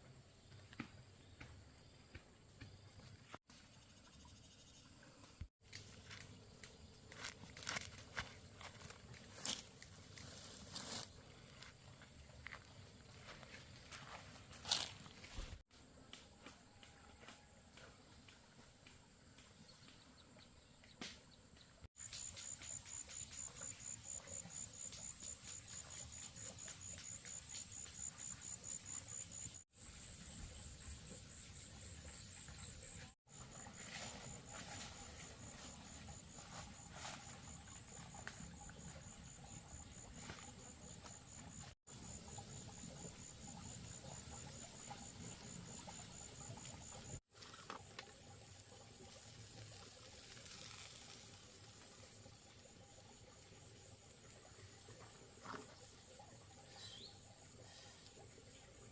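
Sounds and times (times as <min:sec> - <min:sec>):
insects trilling: 0:22.0 - 0:58.9.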